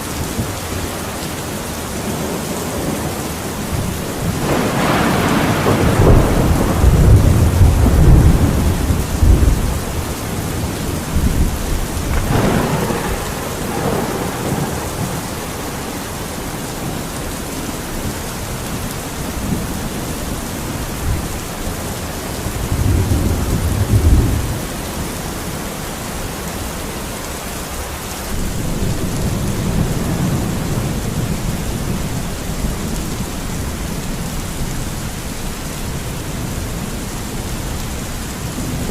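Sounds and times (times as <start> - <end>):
steady rain: 0.0 - 38.9
thunder rumbling low: 2.0 - 17.0, 22.4 - 24.8.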